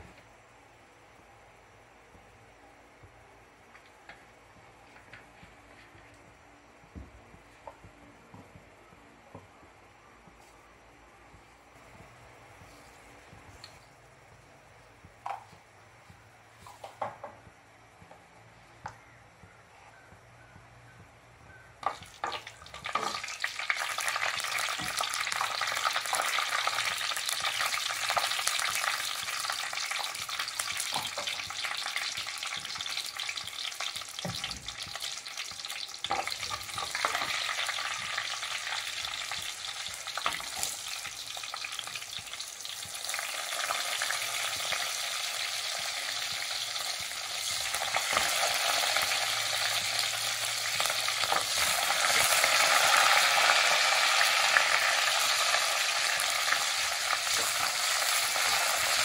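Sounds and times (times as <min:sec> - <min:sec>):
seeds and garlic sizzling in oil: 0:21.8 - 0:59.0.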